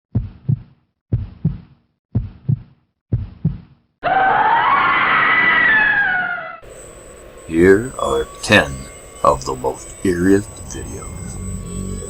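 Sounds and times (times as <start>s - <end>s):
heartbeat thumps: 0.1s - 3.8s
eerie sustained tone: 5.6s - 12.0s.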